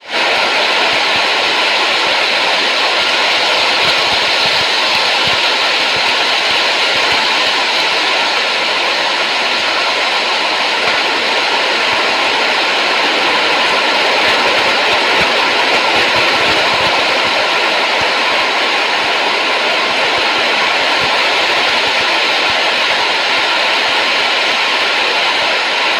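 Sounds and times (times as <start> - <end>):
steady rushing noise: 0.0 - 25.9.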